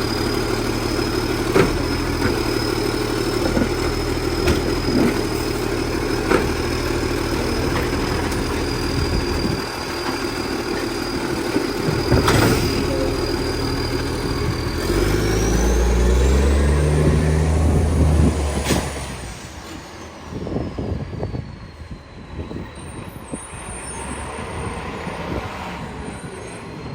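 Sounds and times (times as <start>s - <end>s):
diesel truck engine running: 0.0s - 21.4s.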